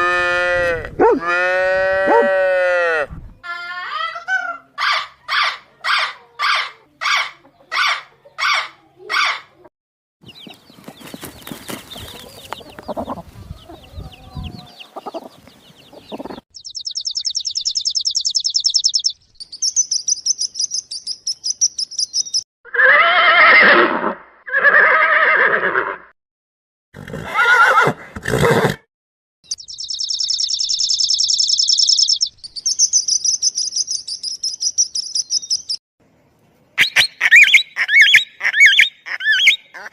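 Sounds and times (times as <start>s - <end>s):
high-pitched bird trills: 16.2s - 22.4s, 29.5s - 35.8s, 36.8s - 39.7s
loud drawn-out animal calls: 22.7s - 26.1s, 36.8s - 39.9s.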